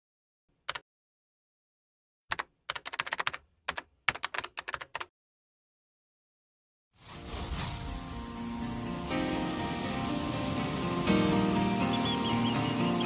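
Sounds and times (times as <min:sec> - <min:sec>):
keyboard typing clicks: 0:02.3 - 0:05.1.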